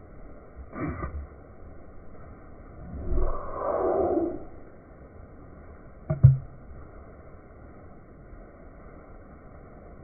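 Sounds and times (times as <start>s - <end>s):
faint steady background noise: 0.0s - 10.0s.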